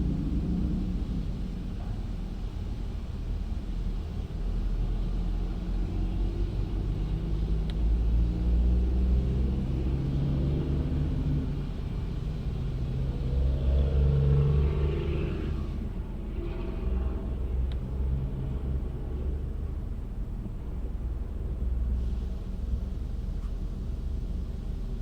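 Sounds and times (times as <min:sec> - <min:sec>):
car wash machinery rumbling: 0:00.0 - 0:25.0.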